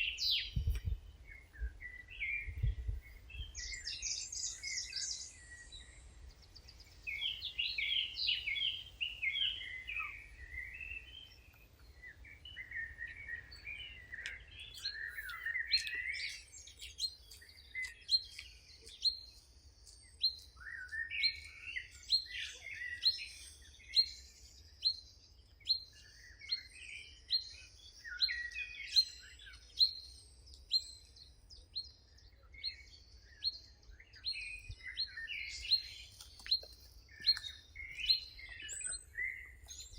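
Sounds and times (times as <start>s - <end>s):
songbirds warbling: 0.0s - 39.9s.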